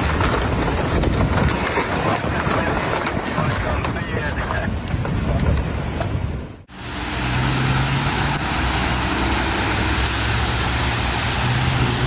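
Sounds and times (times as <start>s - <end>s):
road noise: 0.0s - 12.0s
low engine hum: 6.7s - 12.0s.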